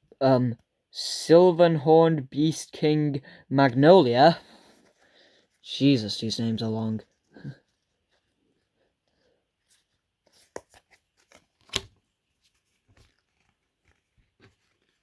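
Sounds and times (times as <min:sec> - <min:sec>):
trading cards rustling and clicking: 0:09.7 - 0:15.0.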